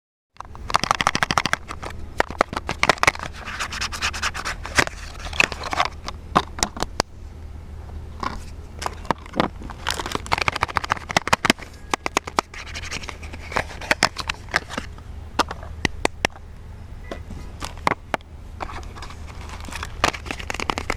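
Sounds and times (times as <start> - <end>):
wrapper crinkling: 8.8 - 14.9, 18.6 - 20.9.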